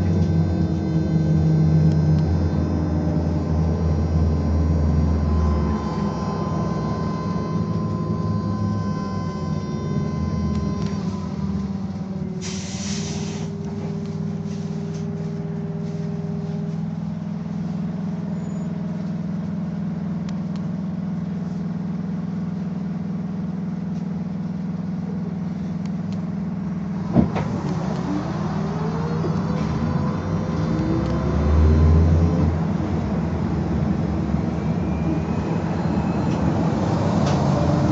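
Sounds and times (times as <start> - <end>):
electric drive whine rising: 0.0 - 19.5
trolleybus electric hum: 0.0 - 37.9
short hiss: 12.4 - 13.5.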